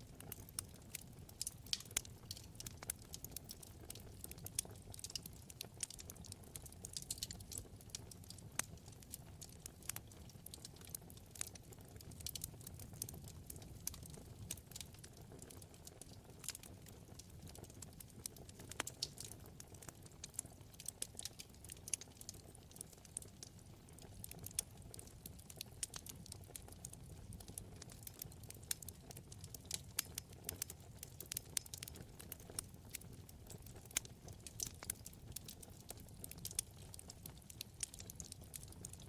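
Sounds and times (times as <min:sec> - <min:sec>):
low rumble of flames: 0:00.0 - 0:39.0
wood fire crackling: 0:00.0 - 0:39.0.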